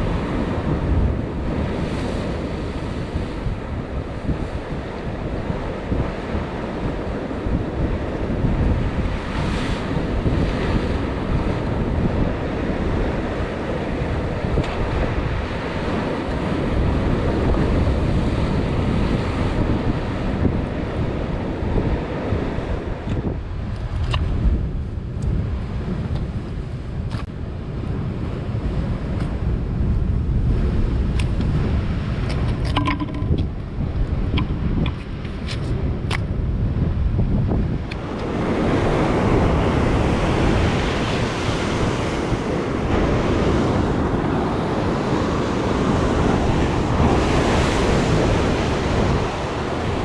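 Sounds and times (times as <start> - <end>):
sea waves washing: 0.0 - 24.2, 37.7 - 50.0
wind buffeting microphone: 0.0 - 50.0.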